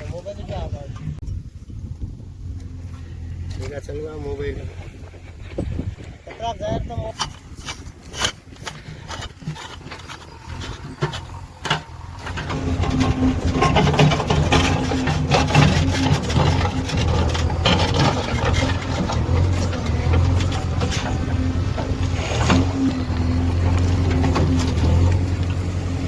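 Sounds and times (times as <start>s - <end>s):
diesel engine running: 7.5s - 26.0s.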